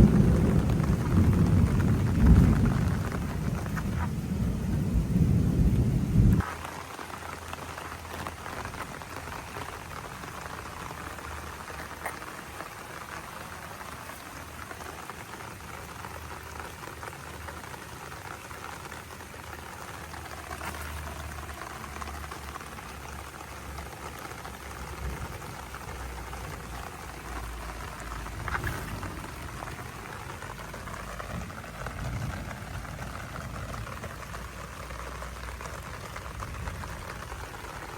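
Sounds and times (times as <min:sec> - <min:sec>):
loud low rumbling: 0:00.0 - 0:06.4, 0:28.0 - 0:33.8
heavy rain falling: 0:00.0 - 0:37.9.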